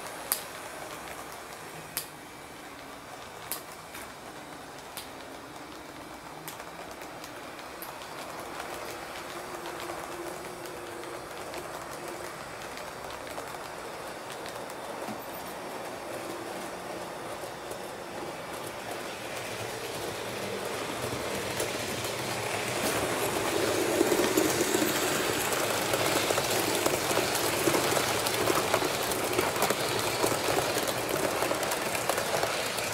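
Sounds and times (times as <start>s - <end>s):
train running on rails: 0.0s - 32.9s.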